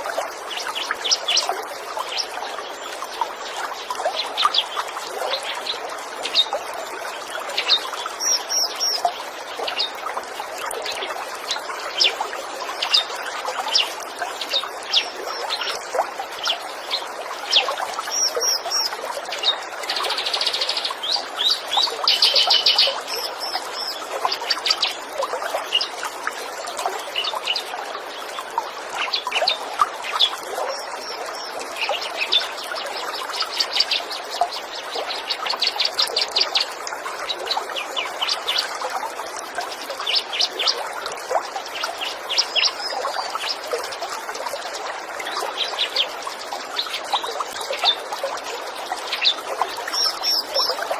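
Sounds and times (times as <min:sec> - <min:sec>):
running water trickling: 0:00.0 - 0:50.9
songbirds chirping and trilling: 0:10.8 - 0:26.0.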